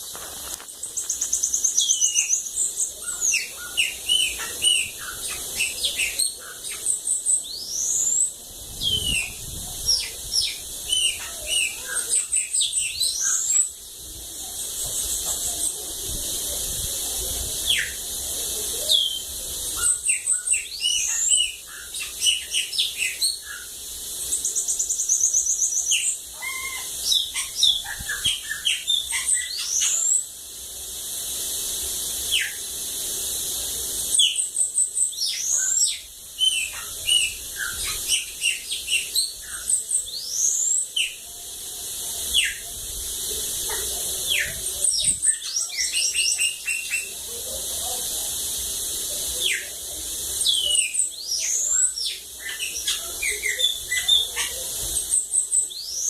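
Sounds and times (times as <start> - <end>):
steady high hiss: 0.0 - 56.0.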